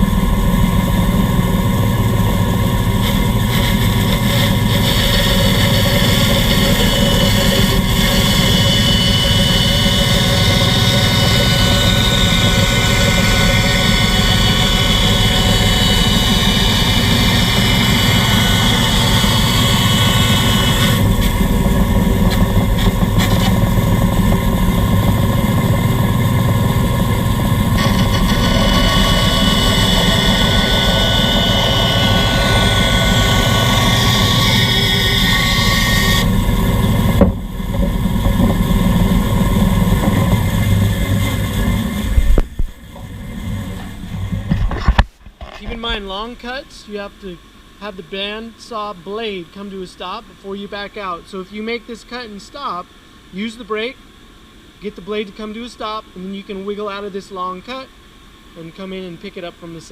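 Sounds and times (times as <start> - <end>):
band saw cutting wood: 0.0 - 44.6.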